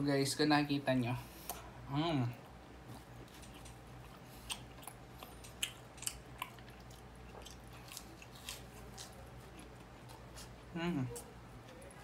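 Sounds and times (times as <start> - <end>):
crunching food while chewing: 2.8 - 12.0.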